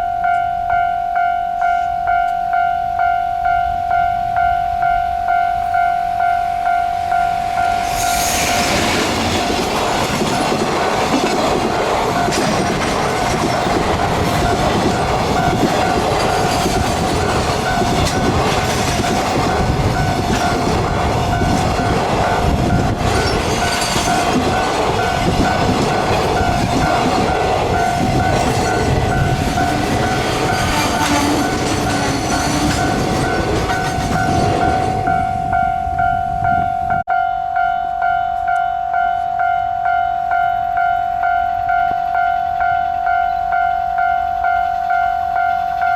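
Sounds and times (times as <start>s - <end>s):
level-crossing alarm ringing: 0.0s - 45.9s
train passing: 0.0s - 45.9s
wheels clattering over rail joints: 8.3s - 35.1s.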